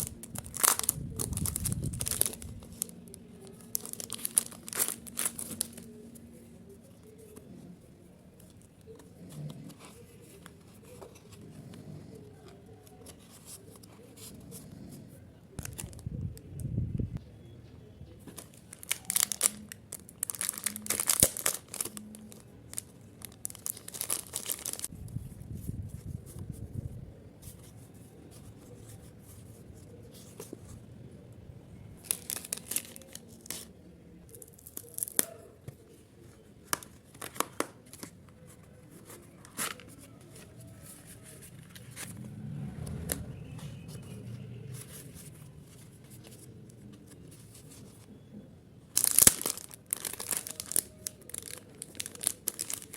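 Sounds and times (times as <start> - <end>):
packaging rustling and tearing: 0.0 - 6.4, 15.6 - 16.0, 18.3 - 24.9, 32.0 - 33.7, 34.3 - 35.4, 49.0 - 52.9.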